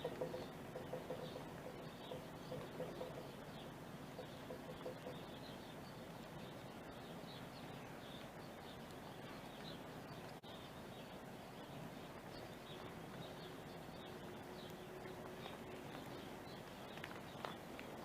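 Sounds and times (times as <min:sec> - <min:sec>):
outdoor background hiss: 0:00.0 - 0:18.0
small birds chirping: 0:00.0 - 0:18.0.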